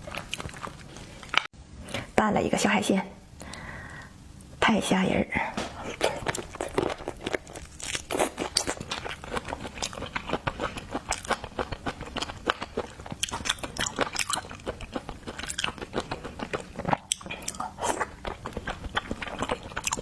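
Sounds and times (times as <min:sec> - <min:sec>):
crunchy chewing: 0:00.0 - 0:01.5, 0:05.8 - 0:20.0.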